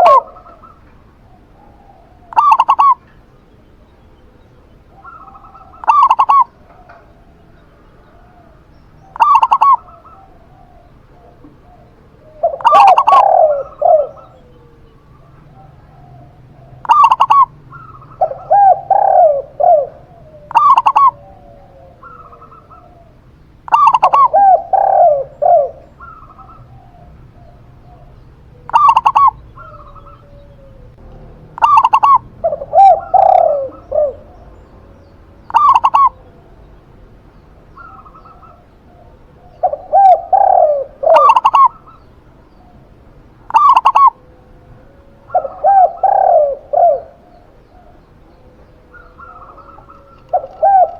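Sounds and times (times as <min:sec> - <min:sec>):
doves cooing: 0:00.0 - 0:50.9.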